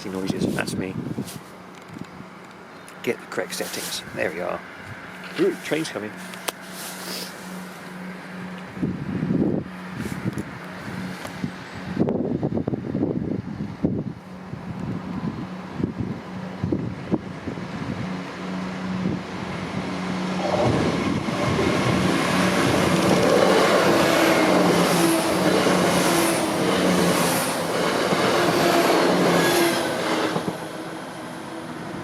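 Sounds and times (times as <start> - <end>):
diesel train engine: 1.5 - 32.0
train wheel noise: 15.5 - 32.0
wheels clacking over rail joints: 21.3 - 30.7.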